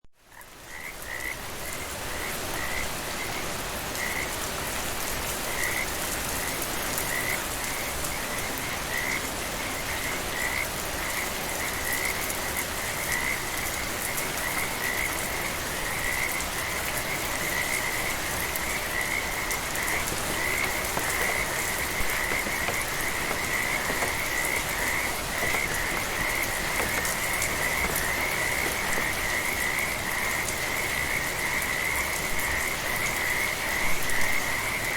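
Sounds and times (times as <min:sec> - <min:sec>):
light rain: 0:00.4 - 0:34.9
frogs calling: 0:17.5 - 0:32.0.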